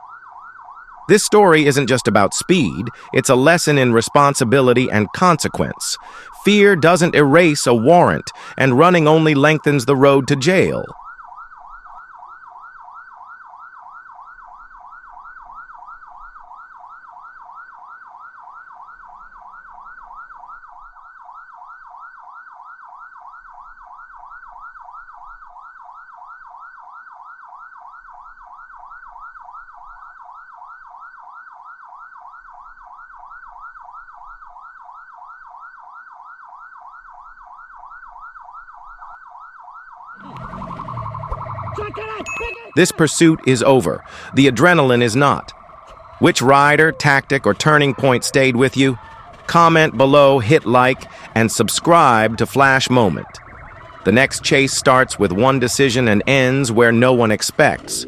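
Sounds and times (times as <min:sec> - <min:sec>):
police siren yelping: 0:00.0 - 0:58.0.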